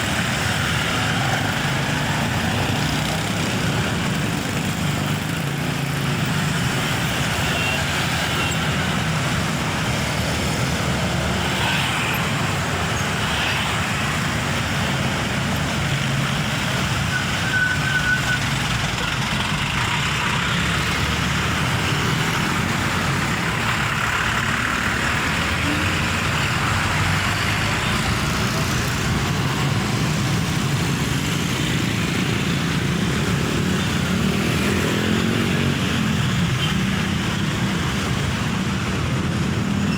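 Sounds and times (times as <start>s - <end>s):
road traffic noise: 0.0s - 39.9s
high squeal: 17.1s - 18.6s
truck diesel engine running: 18.4s - 32.3s.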